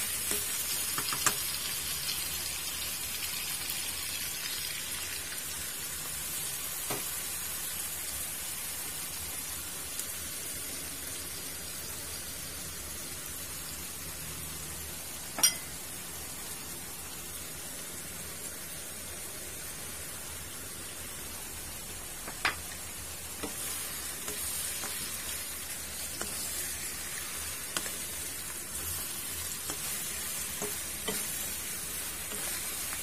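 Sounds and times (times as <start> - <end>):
meat and onion sizzling in a wok: 0.0 - 33.0
sharp clink: 15.4 - 15.8.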